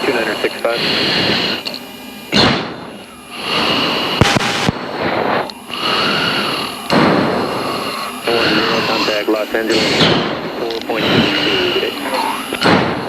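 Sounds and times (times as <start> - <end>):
forceful breathing into mask microphone: 0.6 - 1.8, 3.2 - 8.9.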